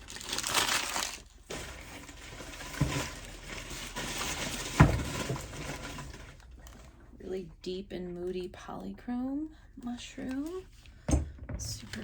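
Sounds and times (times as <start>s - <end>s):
paper rustling and crumpling: 0.0s - 6.9s.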